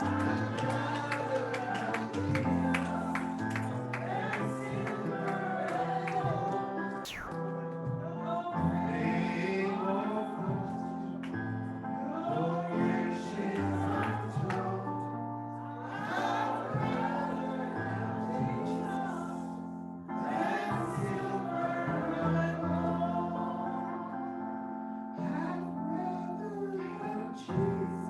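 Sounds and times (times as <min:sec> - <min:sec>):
group singing gospel: 0:00.0 - 0:07.3, 0:12.0 - 0:14.9, 0:15.7 - 0:19.6, 0:20.2 - 0:24.4.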